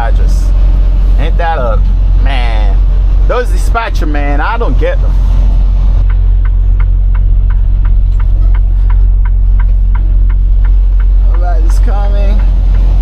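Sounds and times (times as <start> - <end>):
truck engine drone: 0.0 - 13.0
turn signal clicking: 2.8 - 13.0.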